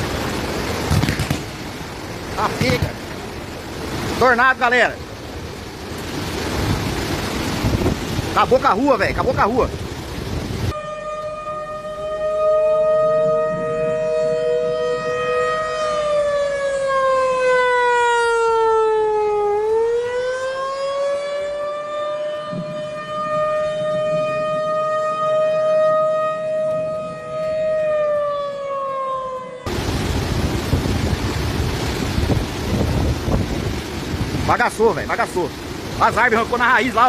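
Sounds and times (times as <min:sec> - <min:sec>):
two-tone warning siren: 0:10.7 - 0:30.0.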